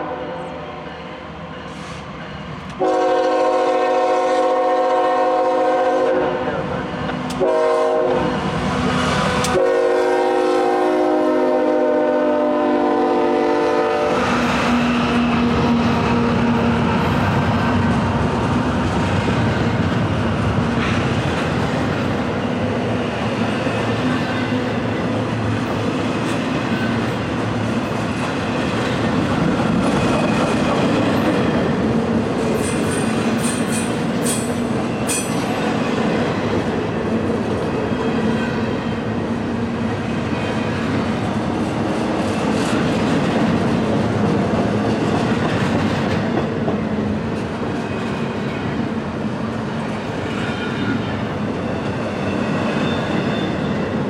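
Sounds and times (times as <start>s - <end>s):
freight train clattering over rails: 1.7s - 54.0s
high-pitched wheel squeals: 52.0s - 53.8s.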